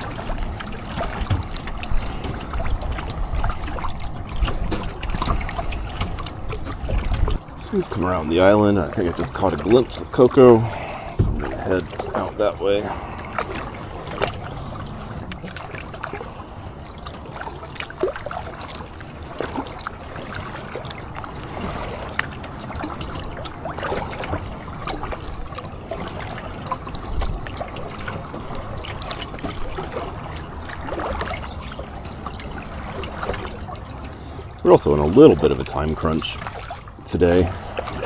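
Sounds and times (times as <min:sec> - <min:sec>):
paddle knocks: 0:00.0 - 0:08.1, 0:09.0 - 0:16.2
small water splashes: 0:00.0 - 0:38.0
water dripping off paddle: 0:00.0 - 0:38.0.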